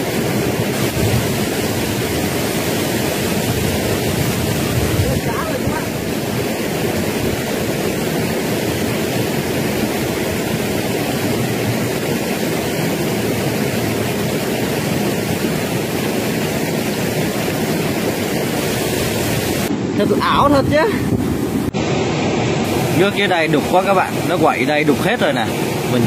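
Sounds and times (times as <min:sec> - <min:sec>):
water rushing over rocks: 0:00.0 - 0:26.0.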